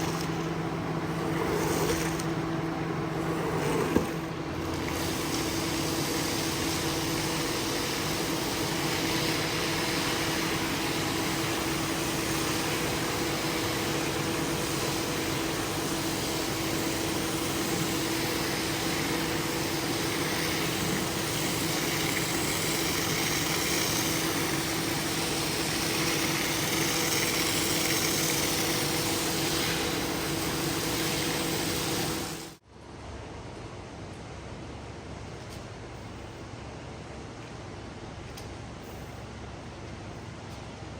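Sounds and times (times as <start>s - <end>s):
cleaning machine motor humming: 0.0s - 32.6s.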